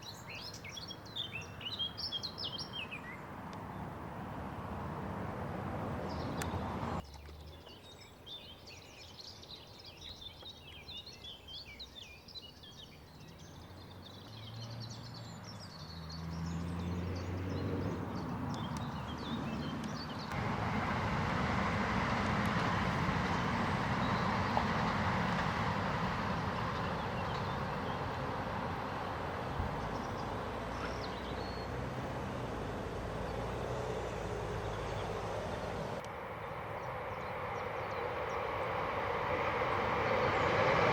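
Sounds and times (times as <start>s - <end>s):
small birds singing: 0.0s - 4.7s, 5.9s - 20.4s, 23.7s - 38.8s
low engine hum: 0.1s - 8.9s, 13.1s - 40.9s
passing vehicle rushing: 3.0s - 7.5s, 13.7s - 40.9s.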